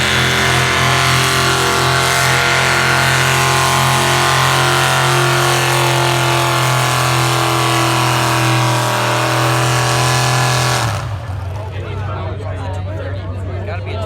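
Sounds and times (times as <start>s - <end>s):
vehicle engine revving high: 0.0s - 12.0s.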